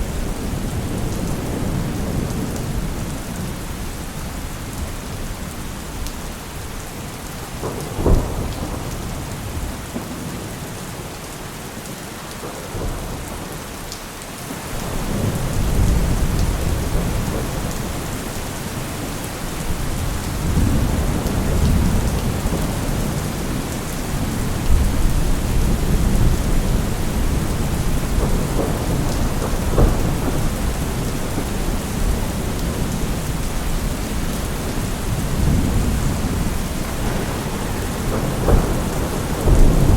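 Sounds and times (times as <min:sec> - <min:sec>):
rain hiss: 0:00.0 - 0:39.9
low rolling thunder: 0:07.4 - 0:11.1, 0:14.8 - 0:39.9.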